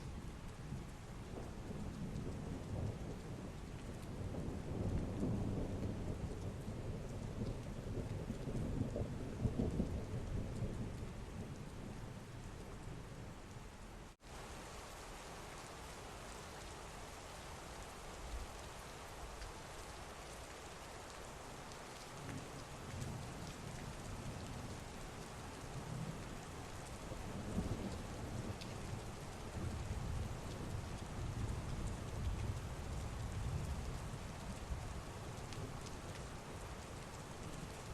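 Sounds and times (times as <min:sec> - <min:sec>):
heavy rain: 0:00.0 - 0:37.9.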